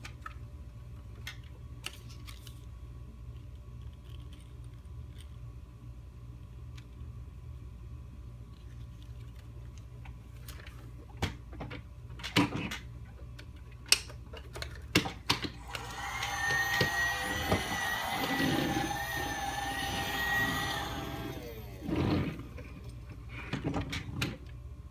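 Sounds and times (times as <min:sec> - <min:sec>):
toy vacuum cleaner motor whine: 0:15.6 - 0:23.0.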